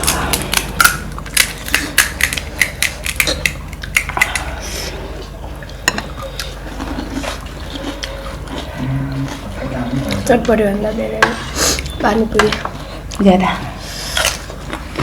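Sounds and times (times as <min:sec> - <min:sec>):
crisp shells cracking: 0:00.0 - 0:04.5
faint liquid sounds: 0:00.0 - 0:15.0.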